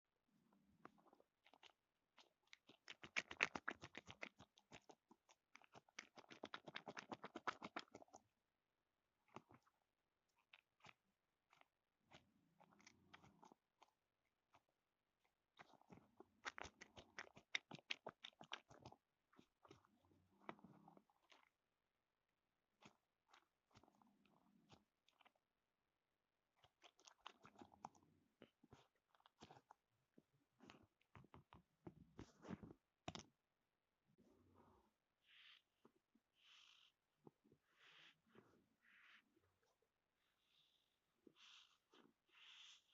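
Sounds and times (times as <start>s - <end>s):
dog eating with crunchy clicks: 0.6s - 8.3s, 9.2s - 21.6s, 22.7s - 25.5s, 26.5s - 31.7s.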